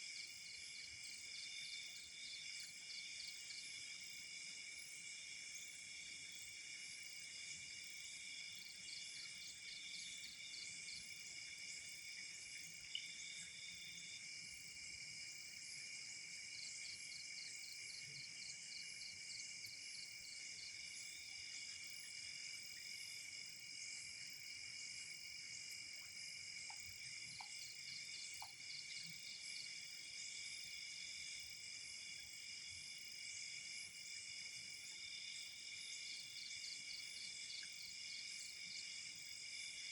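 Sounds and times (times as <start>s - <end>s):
crickets trilling: 8.4s - 39.8s
faint ticks: 25.7s - 27.7s, 28.3s - 29.1s.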